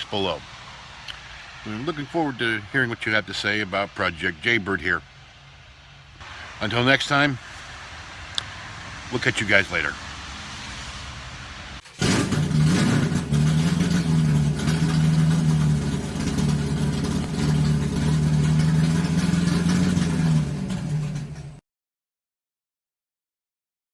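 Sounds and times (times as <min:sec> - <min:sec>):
engine running: 0:07.5 - 0:21.6.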